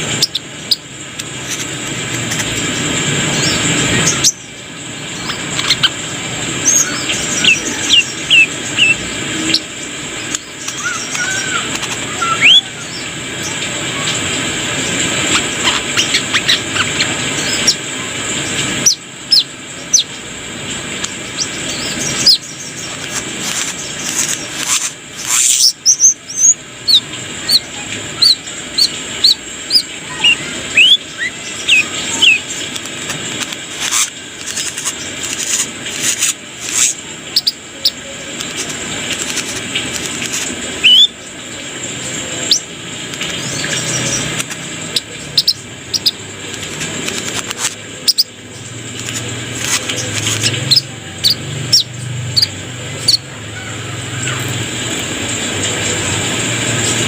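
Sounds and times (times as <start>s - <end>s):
bird chirping and whistling: 0.1s - 0.8s, 3.3s - 4.4s, 5.2s - 6.0s, 6.6s - 14.2s, 15.3s - 17.8s, 21.2s - 23.0s, 23.8s - 32.6s, 40.8s - 41.2s, 44.9s - 46.2s, 50.4s - 53.3s.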